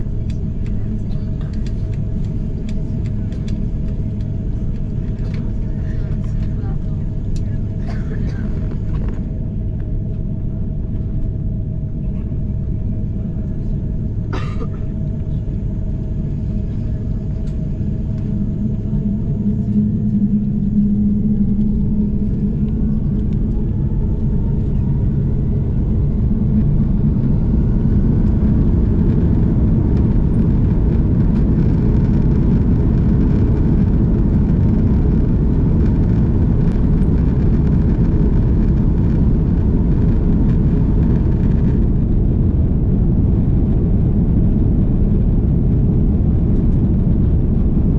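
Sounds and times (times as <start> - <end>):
jet engines spooling up: 15.0 - 47.9.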